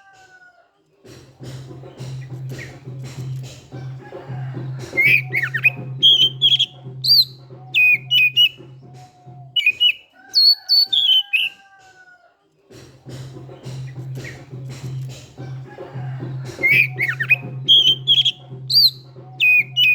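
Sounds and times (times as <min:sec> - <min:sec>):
background music with beat: 0:01.0 - 0:12.0, 0:12.6 - 0:19.9
bird singing whistled notes: 0:01.9 - 0:03.4, 0:04.9 - 0:11.6, 0:13.6 - 0:15.1, 0:16.5 - 0:19.9.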